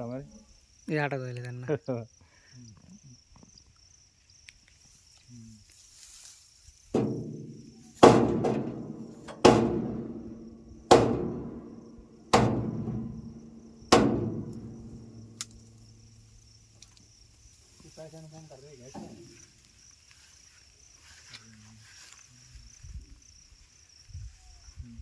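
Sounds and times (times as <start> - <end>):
resonant metal object struck: 7.0 - 16.1.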